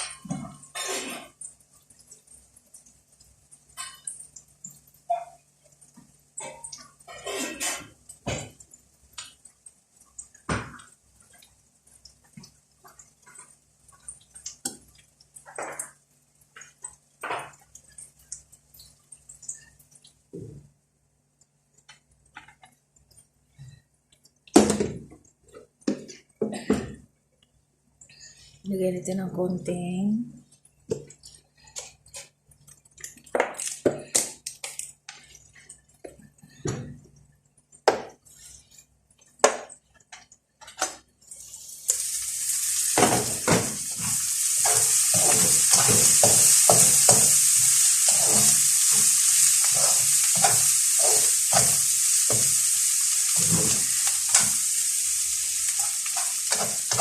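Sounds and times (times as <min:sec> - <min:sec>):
food sizzling in a pan: 0:41.2 - 0:57.0
spatula scraping a pan: 0:42.7 - 0:54.7
utensils knocking on pans: 0:43.0 - 0:52.7, 0:53.3 - 0:54.6.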